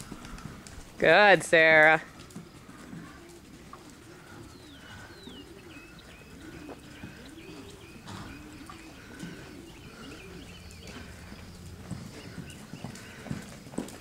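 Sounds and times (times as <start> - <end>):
bird cooing: 2.4 - 13.6
high bird chirps: 4.5 - 12.9.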